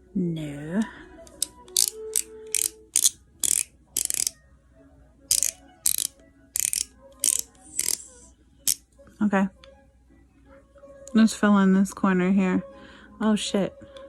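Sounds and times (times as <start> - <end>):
pencil scraping in sharpener: 5.3 - 8.3.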